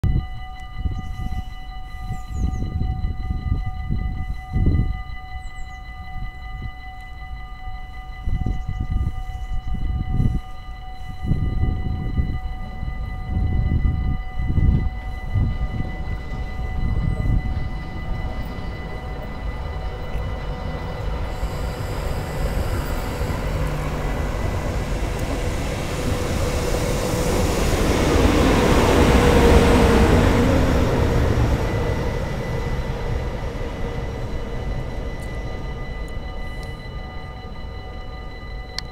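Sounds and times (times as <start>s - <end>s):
level crossing warning bells: 0.0s - 38.9s
train wheel and rail noise: 0.0s - 38.9s.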